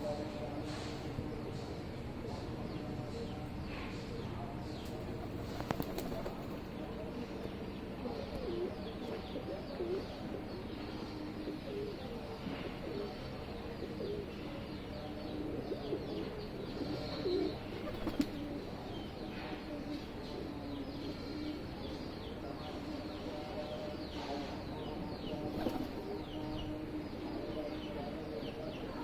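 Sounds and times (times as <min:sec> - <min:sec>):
pigeons cooing: 0:04.9 - 0:07.4, 0:11.1 - 0:28.8.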